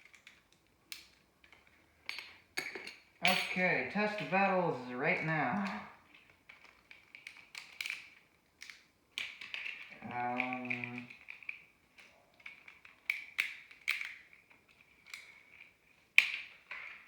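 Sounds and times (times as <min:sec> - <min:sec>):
plastic spinning tops clicking: 0:03.6 - 0:17.0.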